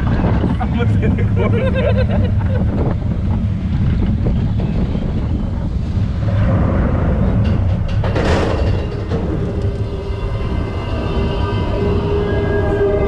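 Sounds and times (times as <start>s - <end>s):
roller coaster rumbling on track: 0.0s - 13.0s
wind buffeting microphone: 0.0s - 13.0s.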